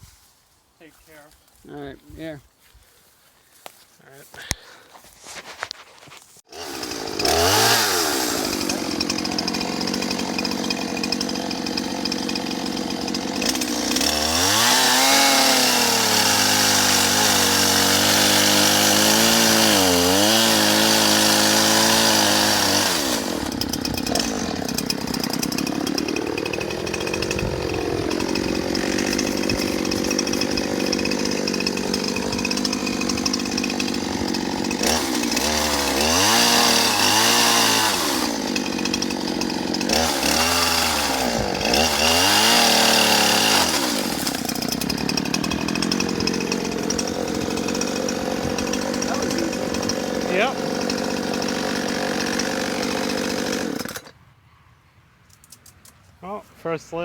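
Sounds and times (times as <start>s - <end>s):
chainsaw revving: 6.5s - 54.2s.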